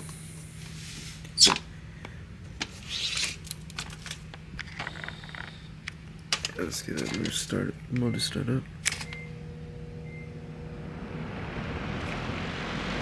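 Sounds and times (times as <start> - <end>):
faint low hum: 3.4 - 13.0.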